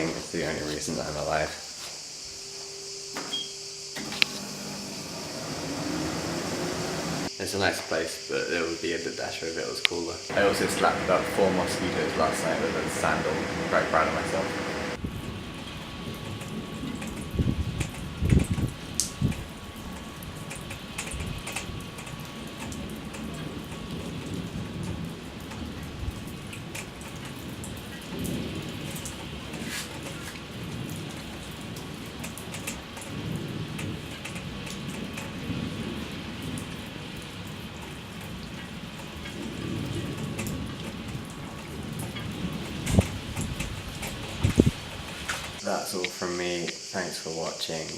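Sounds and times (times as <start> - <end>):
steady rain falling: 0.0 - 3.0, 4.0 - 47.9
low rumbles: 10.2 - 20.6.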